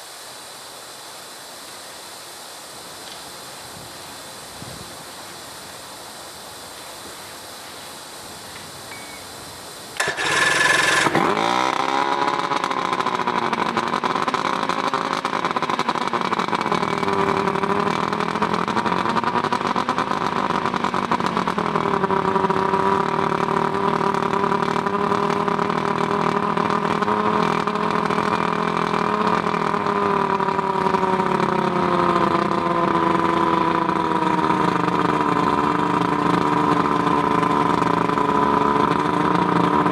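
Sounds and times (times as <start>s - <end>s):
outboard motor running: 10.0s - 39.9s.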